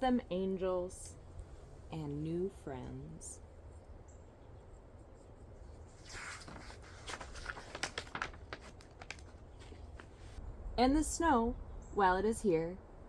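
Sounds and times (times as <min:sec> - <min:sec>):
paper page swish: 0:05.9 - 0:10.4.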